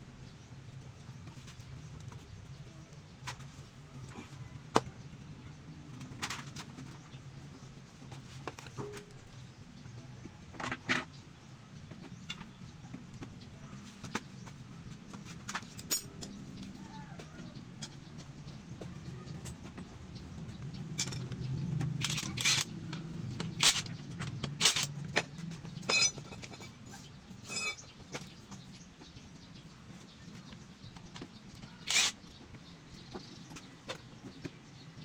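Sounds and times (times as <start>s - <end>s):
hand tools clicking and knocking: 20.9s - 28.3s, 31.0s - 32.6s.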